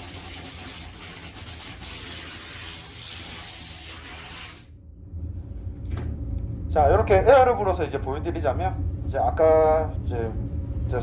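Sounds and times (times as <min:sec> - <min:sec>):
compressed air blow gun hissing: 0:00.0 - 0:04.7.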